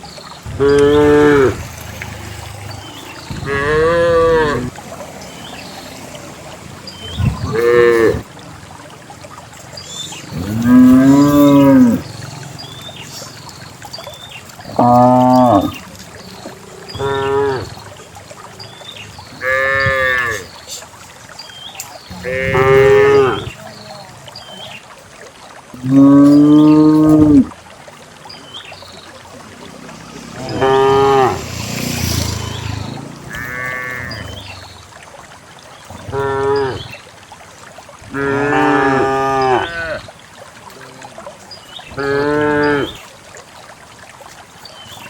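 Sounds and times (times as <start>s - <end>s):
cows mooing: 0.5s - 4.8s, 7.2s - 8.3s, 10.3s - 12.5s, 14.7s - 15.8s, 16.4s - 17.8s, 19.4s - 20.5s, 22.1s - 23.6s, 25.8s - 27.5s, 30.3s - 34.4s, 36.0s - 36.9s, 38.1s - 40.0s, 42.0s - 43.0s.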